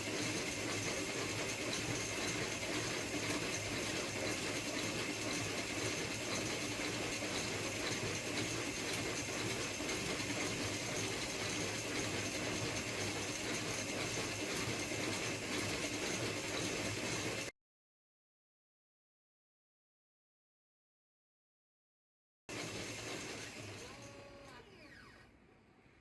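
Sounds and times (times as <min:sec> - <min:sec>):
saw motor cutting steel: 0:22.6 - 0:25.2.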